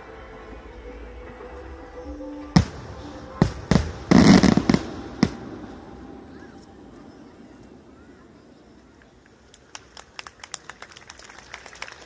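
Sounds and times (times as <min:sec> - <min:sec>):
fireworks shells bursting: 0:02.5 - 0:06.7.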